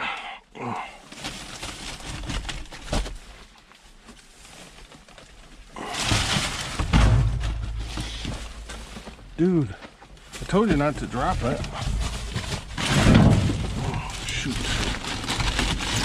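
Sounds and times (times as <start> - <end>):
heavy thuds: 5.9 - 14.4
knocks and clatter in dumpster: 5.9 - 16.0.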